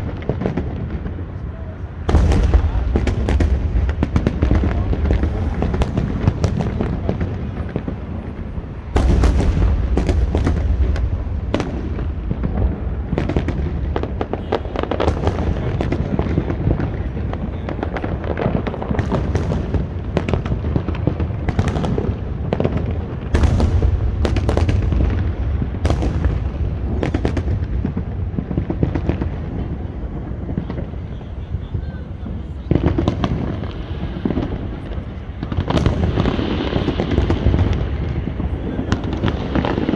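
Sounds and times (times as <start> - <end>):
low rumble of booms: 0.0 - 31.0.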